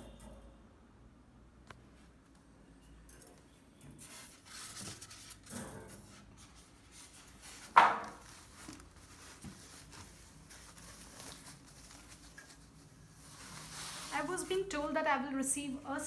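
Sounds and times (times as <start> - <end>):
packaging rustling: 6.7 - 14.6
sharp knock: 7.8 - 8.1.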